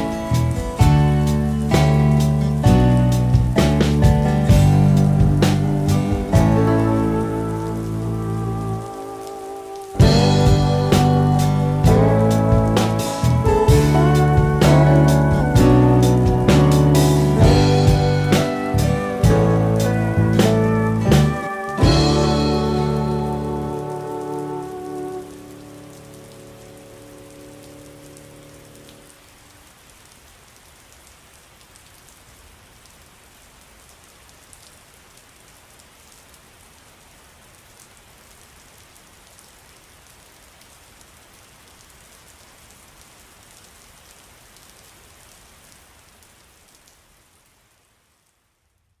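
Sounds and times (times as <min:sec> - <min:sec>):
soft music notes: 0:00.0 - 0:29.1
steady rain falling: 0:00.0 - 0:49.0.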